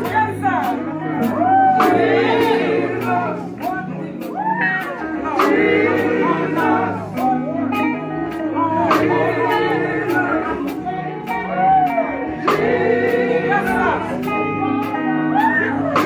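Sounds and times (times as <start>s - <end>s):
bass guitar: 0.0s - 16.0s
electric guitar: 0.0s - 16.0s
people singing: 0.0s - 16.0s.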